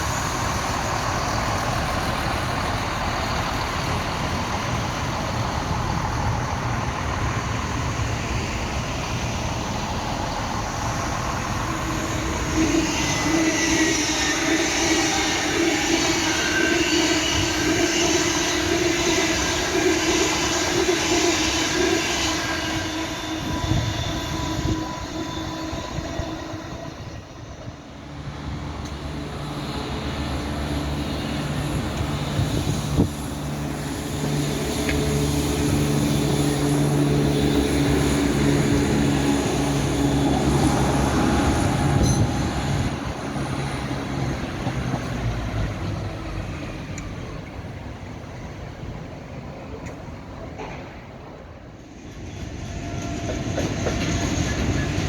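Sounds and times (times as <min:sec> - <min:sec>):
train approaching with low drone: 0:00.0 - 0:55.0
train running loudly: 0:00.0 - 0:55.0.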